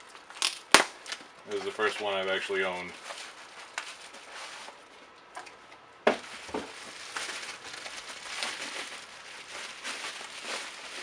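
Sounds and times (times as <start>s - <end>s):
packaging crinkling: 2.7s - 4.9s, 6.2s - 11.0s.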